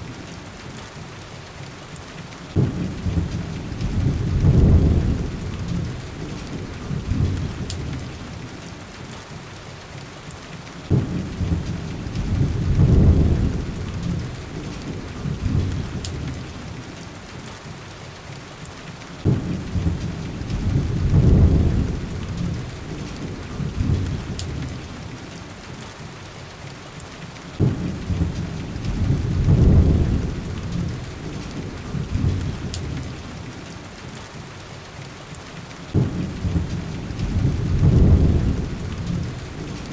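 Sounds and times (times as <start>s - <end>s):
heavy rain: 0.0s - 39.9s
thunder rumbles: 2.5s - 8.5s, 10.8s - 17.0s, 19.2s - 25.2s, 27.6s - 33.6s, 35.9s - 39.9s.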